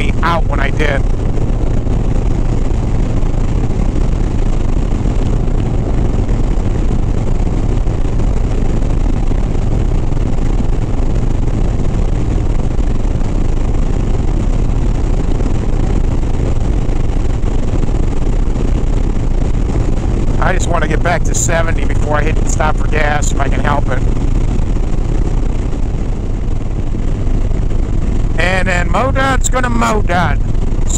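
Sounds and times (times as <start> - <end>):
wind and road noise: 0.0 - 30.9.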